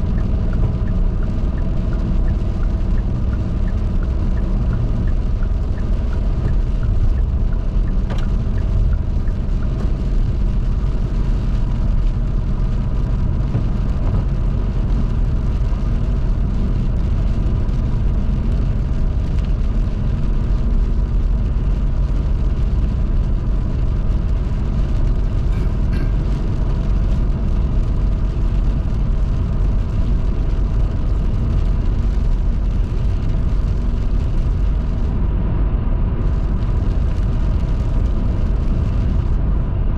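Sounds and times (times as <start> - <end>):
car tyres on wet road: 0.0 - 39.9.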